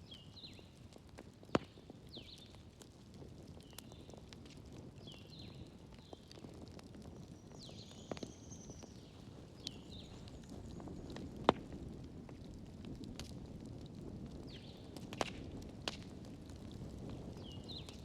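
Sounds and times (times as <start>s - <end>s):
fire crackling: 0.0s - 18.0s
wood fire rumbling: 0.0s - 18.0s
loud pop of fire: 11.4s - 11.8s, 15.0s - 16.1s.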